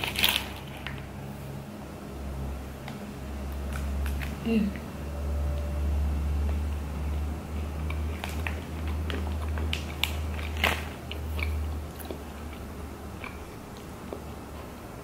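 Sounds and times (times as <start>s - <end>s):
person chewing cookie: 6.4s - 15.0s.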